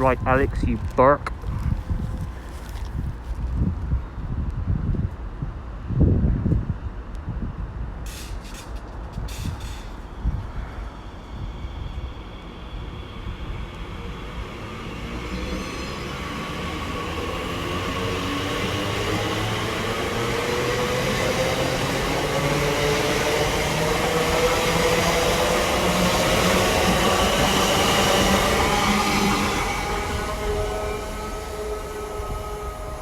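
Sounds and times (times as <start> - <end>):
electric train passing: 8.0 - 33.0
train motor whine rising: 9.6 - 33.0.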